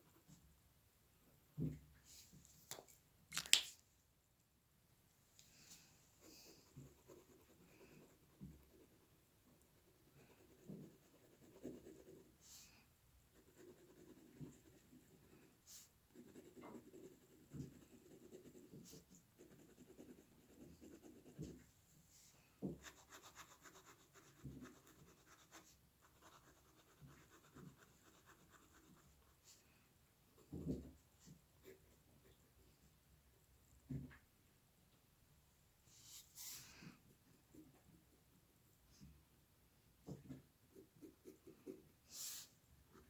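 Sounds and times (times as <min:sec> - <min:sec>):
drawing tool scratching on paper: 0:10.3 - 0:12.4, 0:13.4 - 0:21.6.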